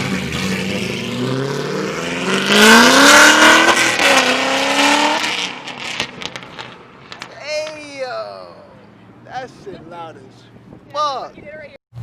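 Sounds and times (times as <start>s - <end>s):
sports car accelerating hard: 0.0s - 7.2s
exhaust pops: 5.2s - 7.9s.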